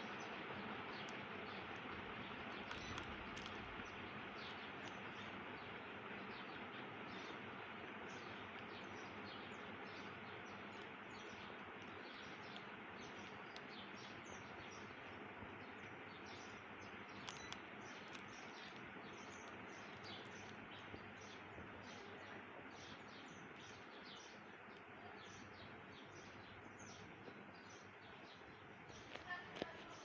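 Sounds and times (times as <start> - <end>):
small clicks: 0.9 - 5.4, 8.1 - 9.2, 9.9 - 22.0, 28.9 - 30.0.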